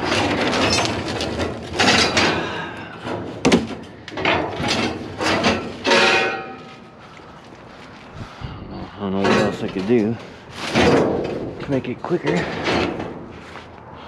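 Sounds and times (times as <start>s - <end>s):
metal clank: 0.0s - 6.9s, 9.2s - 13.3s
scrap metal scraping and knocking: 0.0s - 7.2s, 9.2s - 13.7s.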